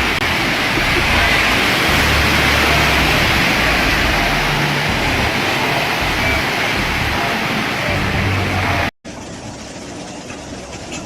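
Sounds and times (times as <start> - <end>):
low rumble: 0.0 - 7.3
turbulent water rushing: 0.0 - 10.9.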